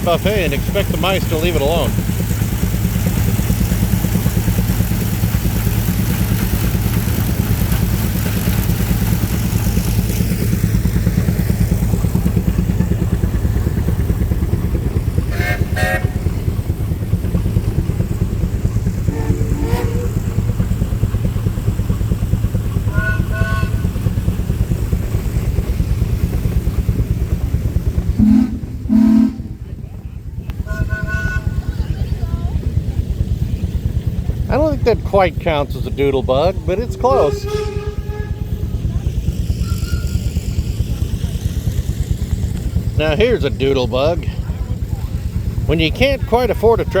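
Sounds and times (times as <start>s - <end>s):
engine running with low pulsing: 0.0s - 47.0s
faint short pitched sounds: 19.1s - 20.3s.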